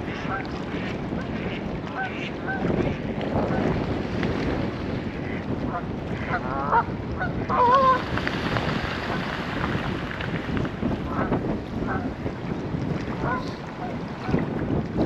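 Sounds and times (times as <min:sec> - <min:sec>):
wind buffeting microphone: 0:00.0 - 0:15.0
geese honking: 0:05.3 - 0:08.0, 0:13.2 - 0:14.0.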